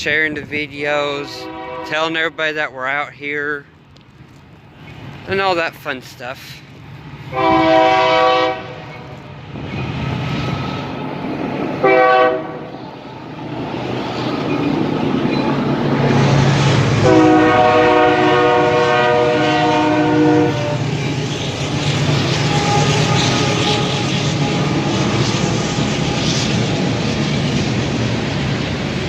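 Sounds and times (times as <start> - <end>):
train rumble: 0.0 - 29.0
locomotive air horn: 1.2 - 2.2, 7.3 - 9.2, 11.8 - 12.8, 17.0 - 20.9, 22.5 - 25.1
clacking train wheels: 12.8 - 29.0.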